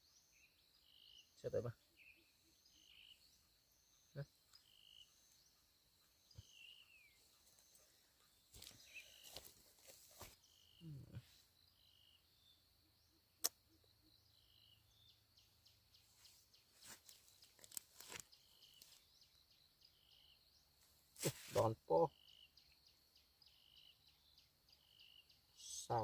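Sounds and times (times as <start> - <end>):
rustles and light clicks: 16.2 - 19.0.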